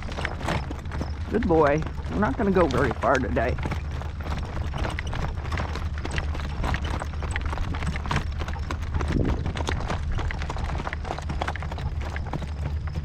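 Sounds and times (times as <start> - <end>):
horse hooves clip-clopping: 0.0 - 13.0
wind on microphone: 9.0 - 10.2.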